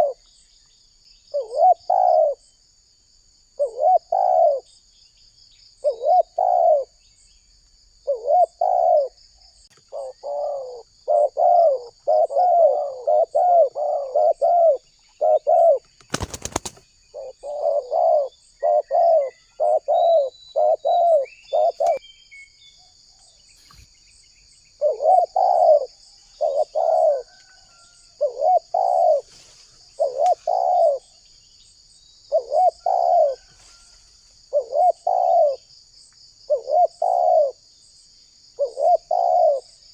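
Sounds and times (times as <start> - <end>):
doves cooing: 0.0 - 0.2, 1.3 - 2.4, 3.6 - 4.7, 5.8 - 7.0, 8.0 - 9.2, 9.8 - 22.0, 24.8 - 31.2, 32.3 - 33.9, 34.5 - 35.7, 36.5 - 37.6, 38.6 - 39.8
high insect trill: 0.0 - 39.9.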